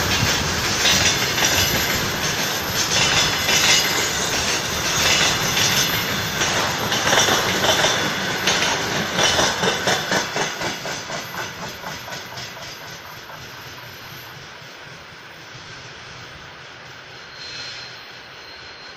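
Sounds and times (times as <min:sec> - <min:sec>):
train wheels clattering over rail joints: 0:00.0 - 0:14.4.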